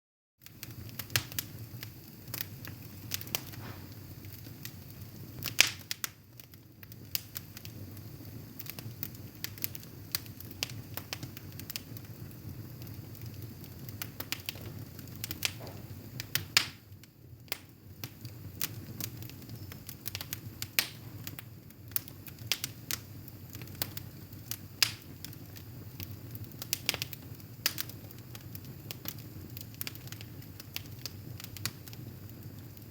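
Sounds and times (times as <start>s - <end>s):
wood fire crackling and popping: 0.4s - 32.9s.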